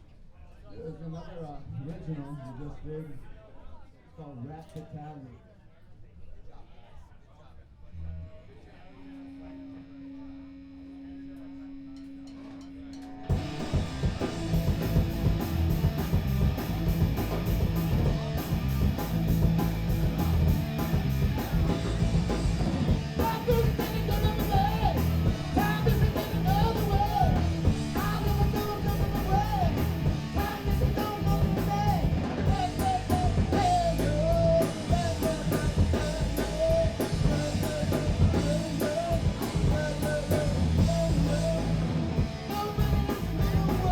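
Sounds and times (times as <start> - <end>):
punk rock band playing: 12.4 - 43.9.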